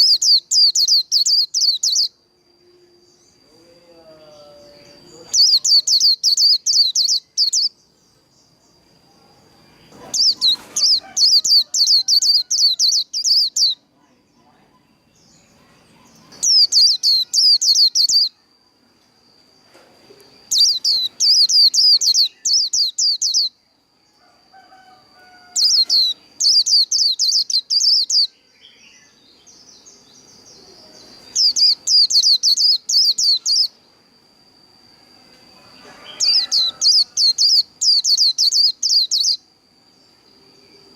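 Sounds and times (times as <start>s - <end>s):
bird warbling high chirps: 0.0s - 2.2s, 4.2s - 7.8s, 9.8s - 13.8s, 15.2s - 18.4s, 20.4s - 23.6s, 24.6s - 33.8s, 35.8s - 39.5s
faint steady high tone: 0.0s - 40.9s.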